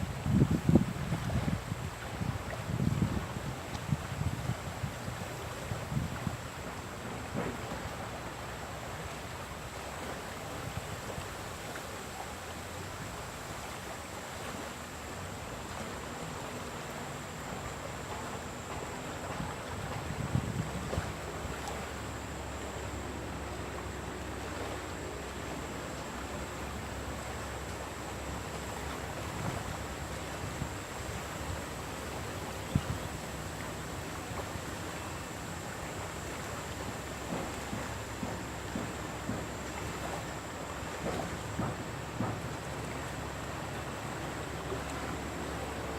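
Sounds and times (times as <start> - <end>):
wind on microphone: 0.0 - 7.6, 19.3 - 21.6, 32.6 - 33.7
river water rushing: 0.0 - 45.9.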